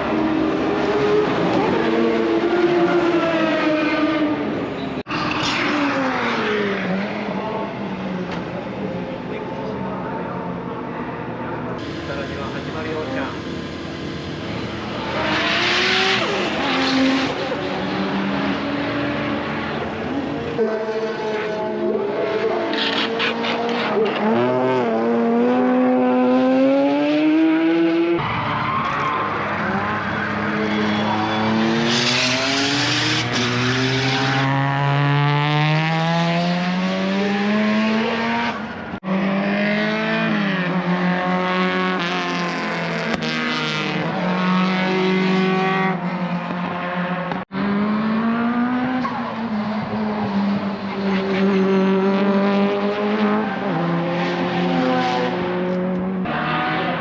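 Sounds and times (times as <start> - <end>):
race car engines accelerating: 0.0 - 57.0.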